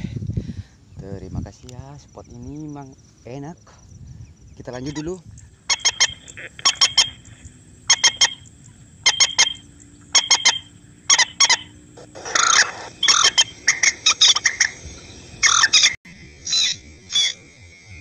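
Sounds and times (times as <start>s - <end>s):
birds squawking harshly: 4.5s - 17.4s.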